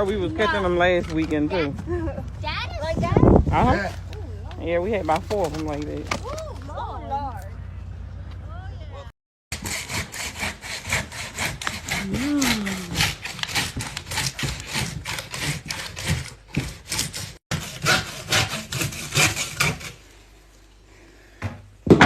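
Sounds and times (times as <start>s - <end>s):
fast rasping strokes: 9.5s - 20.0s.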